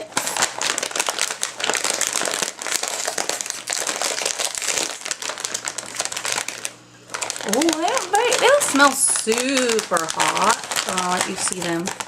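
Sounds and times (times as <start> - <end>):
plastic chip bag crinkling: 0.0 - 12.0.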